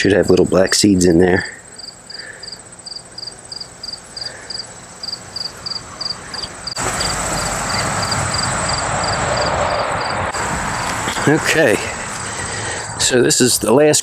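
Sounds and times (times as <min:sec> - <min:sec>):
cricket chirping: 0:00.3 - 0:13.1
steady rushing noise: 0:06.6 - 0:13.6.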